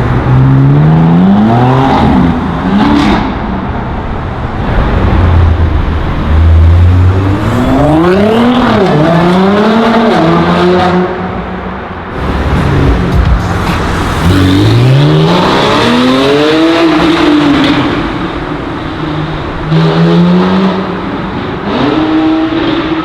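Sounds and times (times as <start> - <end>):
car engine accelerating hard: 12.1 - 18.9.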